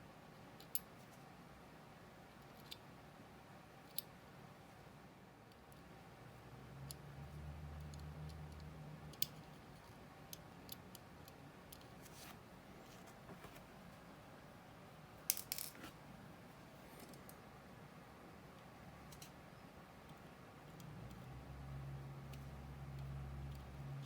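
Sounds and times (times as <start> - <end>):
faint low hum: 0.0 - 24.0
watch parts and tools clicking: 6.8 - 12.1, 15.3 - 15.9.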